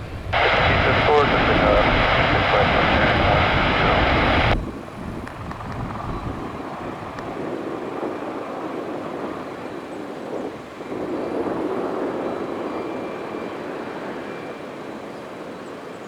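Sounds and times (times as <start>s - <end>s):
aircraft engine noise: 0.0s - 14.7s.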